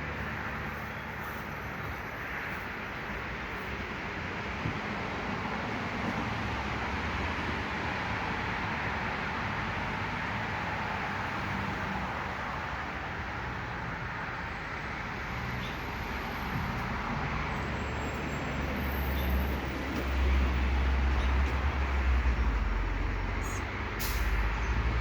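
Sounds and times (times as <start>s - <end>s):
road traffic noise: 0.0s - 25.0s
vehicle low rumble: 16.2s - 25.0s.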